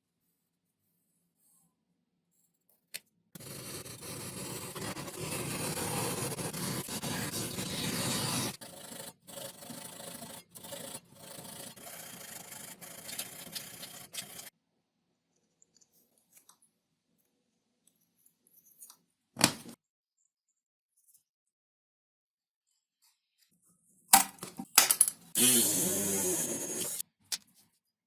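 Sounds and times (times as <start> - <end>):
rubbing and scraping foam: 3.4 - 14.5.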